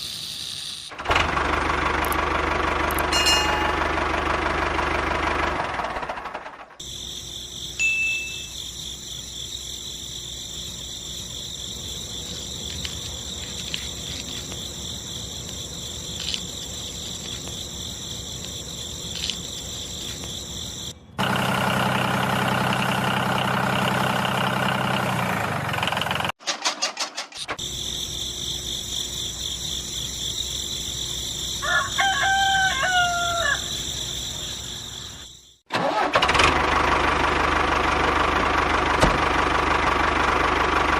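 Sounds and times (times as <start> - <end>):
background hum with whine: 6.8 - 21.2
rooster crowing: 31.6 - 34.2.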